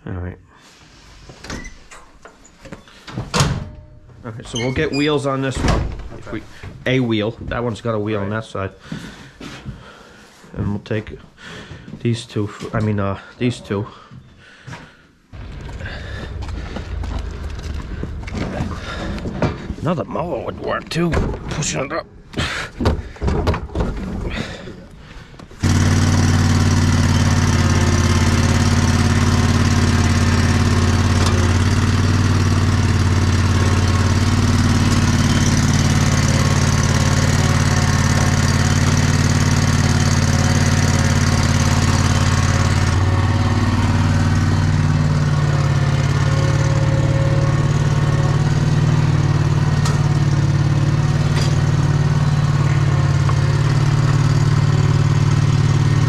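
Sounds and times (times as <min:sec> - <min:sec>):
knocks and clatters: 0:15.3 - 0:21.8, 0:22.7 - 0:24.9, 0:49.6 - 0:54.7
vehicle engine droning: 0:15.3 - 0:21.8, 0:25.6 - 0:56.0.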